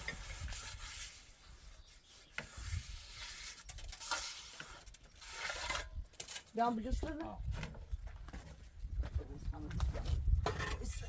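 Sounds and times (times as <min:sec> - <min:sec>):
hand tools scraping building material: 0:00.0 - 0:06.6.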